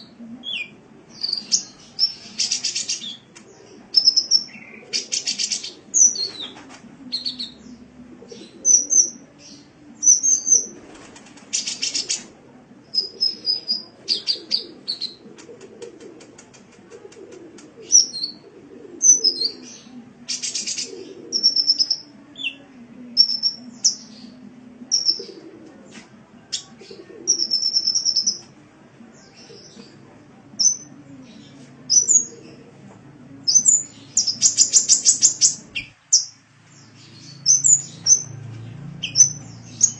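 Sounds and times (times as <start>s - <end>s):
faint low background noise: 0.0s - 39.9s
sunbird chirping and trilling: 33.6s - 39.9s.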